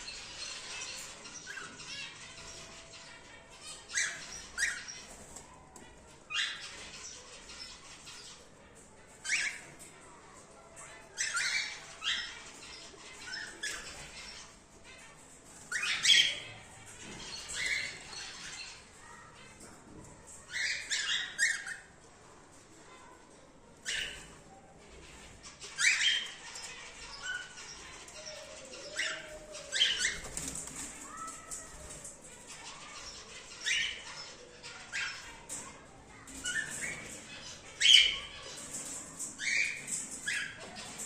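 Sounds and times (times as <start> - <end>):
cockatiels squawking: 0.1 - 5.4, 11.1 - 15.0, 15.7 - 19.2, 20.5 - 22.0, 25.0 - 41.0.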